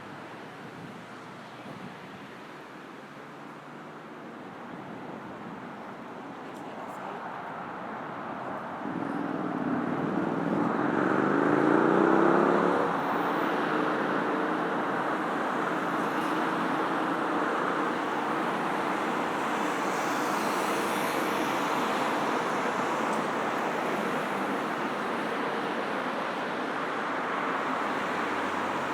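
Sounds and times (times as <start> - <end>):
steady traffic noise: 0.0 - 28.9
vehicle accelerating past: 9.2 - 13.0.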